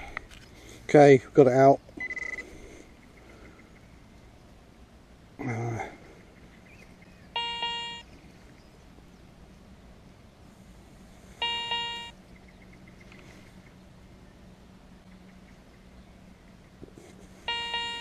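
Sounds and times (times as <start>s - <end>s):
metal detector beeps: 2.0s - 2.4s, 7.4s - 8.1s, 11.4s - 12.2s, 17.5s - 18.0s.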